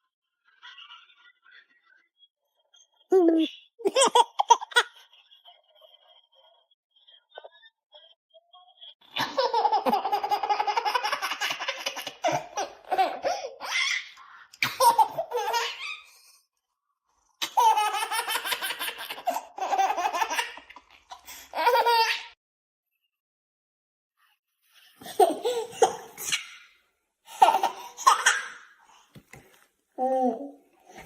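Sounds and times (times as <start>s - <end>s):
baby laughing: 3.8s - 5.1s, 9.2s - 16.2s, 17.4s - 22.4s, 25.0s - 28.8s.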